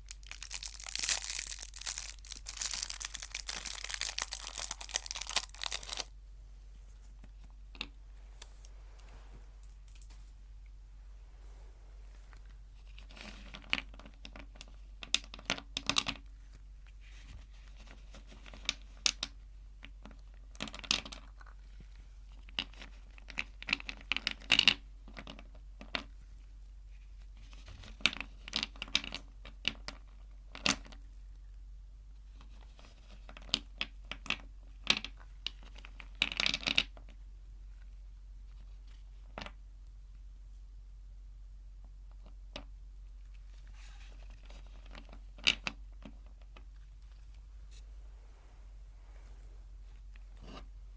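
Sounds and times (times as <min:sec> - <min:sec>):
sweet wrappers crinkling: 0:00.0 - 0:06.2.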